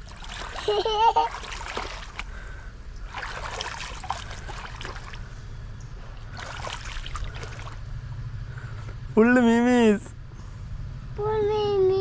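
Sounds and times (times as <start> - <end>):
stream water trickling: 0.0 - 8.3.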